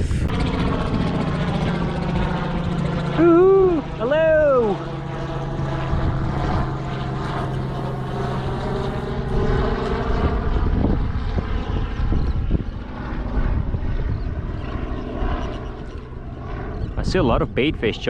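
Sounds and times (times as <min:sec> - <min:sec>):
broad rushing noise: 0:00.0 - 0:04.8, 0:05.4 - 0:11.0
distant engine droning: 0:00.0 - 0:18.0.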